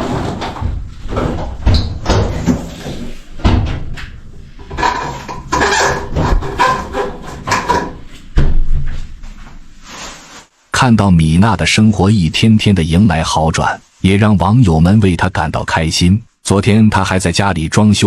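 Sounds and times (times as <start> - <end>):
washing machine knocking and thumping: 0.0 - 2.8, 3.4 - 9.0.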